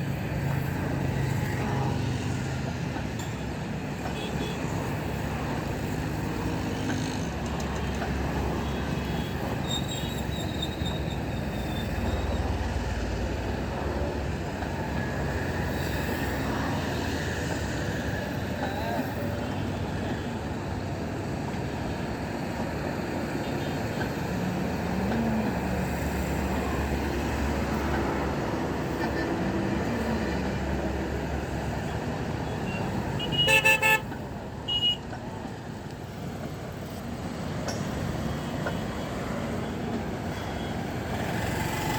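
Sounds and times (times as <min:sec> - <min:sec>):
train low rumble: 0:04.7 - 0:33.2.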